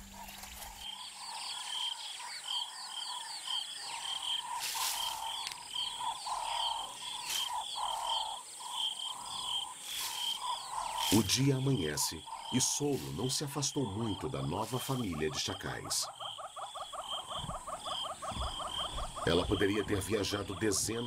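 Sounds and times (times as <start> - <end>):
chirping insect calls: 0.0 - 21.0
high insect drone: 0.0 - 21.0
faint ticks: 4.7 - 6.4.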